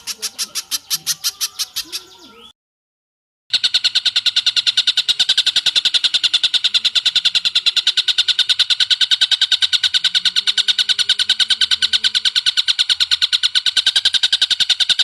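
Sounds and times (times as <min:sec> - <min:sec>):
bird calls: 0:00.0 - 0:02.5, 0:03.9 - 0:15.0
rapid high bird notes: 0:00.0 - 0:02.5.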